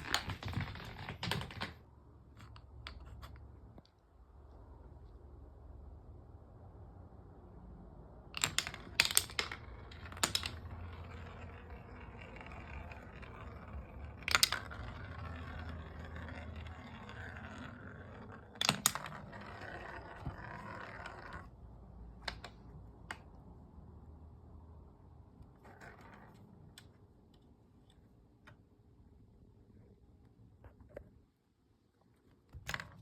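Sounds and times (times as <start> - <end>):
marbles rolling on wooden track: 0.0 - 1.8, 8.4 - 21.6
marbles clicking on track: 8.4 - 21.5.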